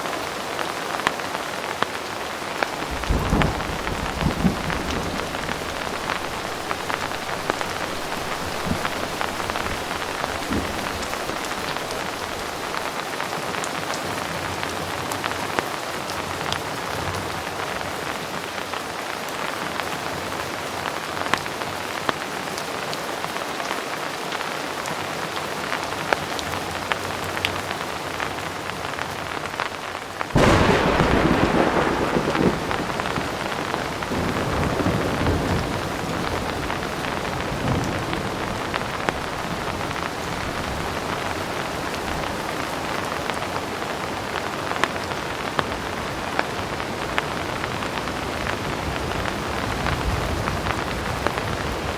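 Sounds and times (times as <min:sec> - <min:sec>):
heavy rain: 0:00.0 - 0:51.9
thunderclap rumbling: 0:02.6 - 0:12.9, 0:30.3 - 0:44.5
sharp rain drop ticks: 0:02.6 - 0:13.0, 0:28.7 - 0:42.6.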